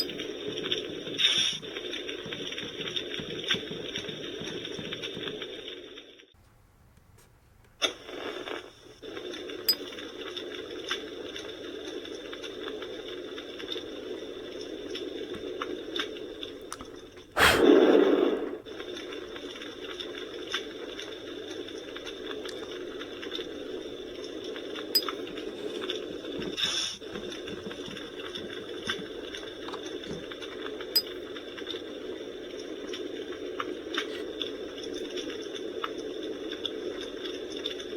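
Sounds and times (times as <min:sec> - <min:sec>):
recorded campfire crackle: 0:00.0 - 0:37.9.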